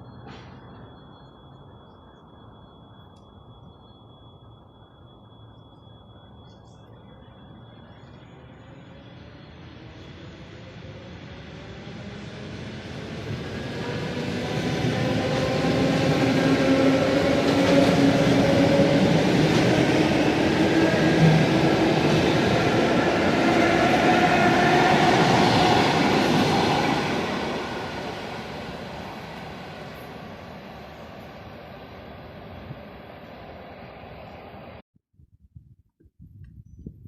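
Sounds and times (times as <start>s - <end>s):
train wheels rumbling on rails: 9.8s - 34.8s.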